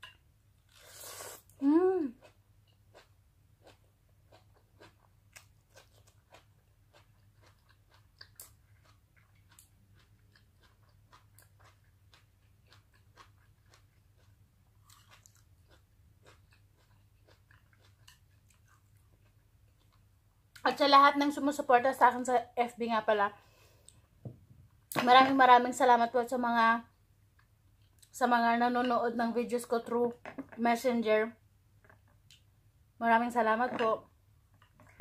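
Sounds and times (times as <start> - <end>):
faint chewing with crunches: 0.6 - 20.7, 27.2 - 28.2.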